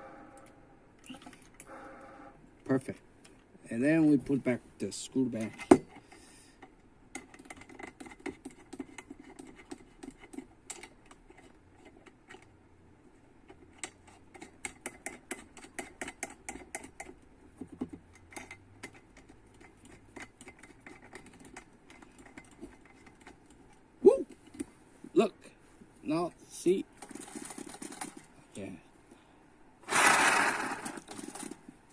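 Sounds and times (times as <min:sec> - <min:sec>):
metal valve parts clicking: 0:18.1 - 0:23.7.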